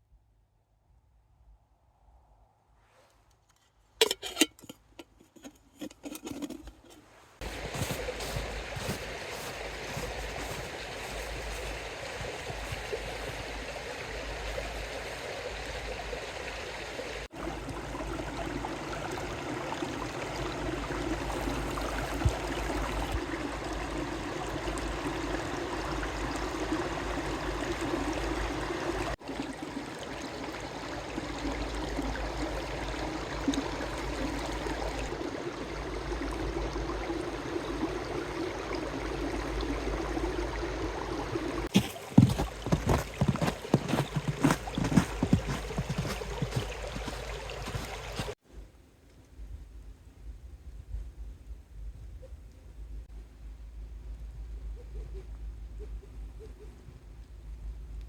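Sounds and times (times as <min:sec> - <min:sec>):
mountain stream running: 0:05.3 - 0:48.4.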